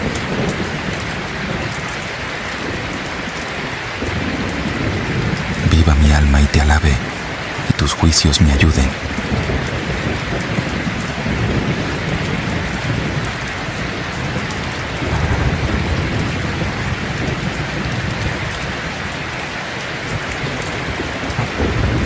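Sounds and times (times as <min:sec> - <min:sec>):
heavy rain falling: 0:00.0 - 0:22.0
rolling thunder: 0:14.9 - 0:18.2.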